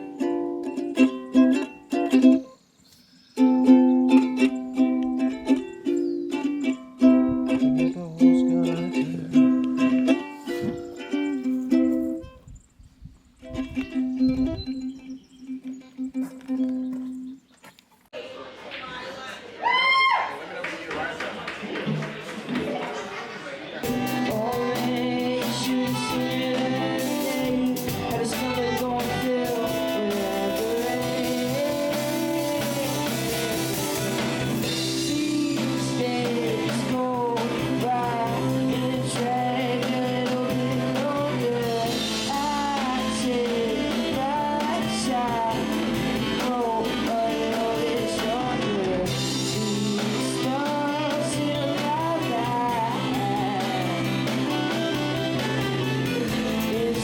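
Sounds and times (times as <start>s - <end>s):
bluesy rock song with singing: 23.8s - 57.0s.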